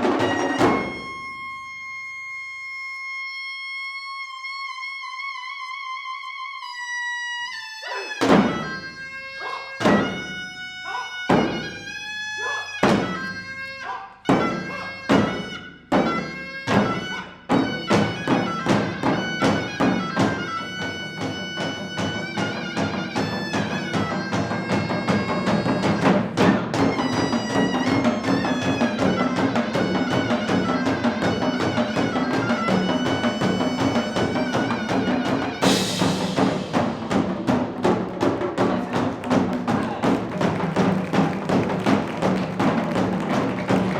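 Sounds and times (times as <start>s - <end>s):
percussion ensemble drumming: 0.0s - 1.6s, 8.2s - 43.9s
cymbal crash: 35.6s - 37.8s.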